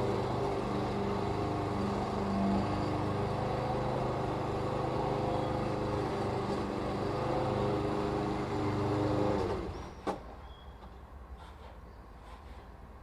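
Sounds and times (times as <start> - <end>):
lawn mower engine running: 0.0 - 9.8.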